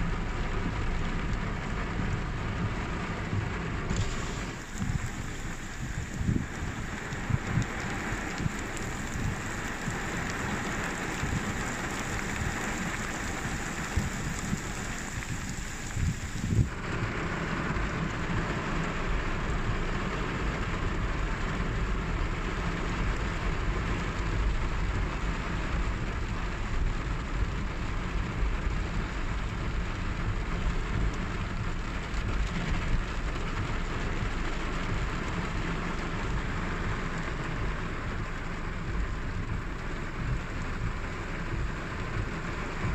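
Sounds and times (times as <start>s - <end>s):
low rumble: 0.0s - 19.8s
steady rain: 0.0s - 42.9s.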